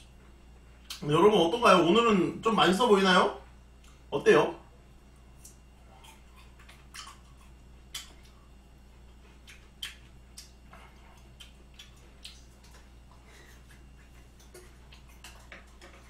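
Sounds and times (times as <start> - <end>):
wet chewing clicks: 5.4 - 16.0.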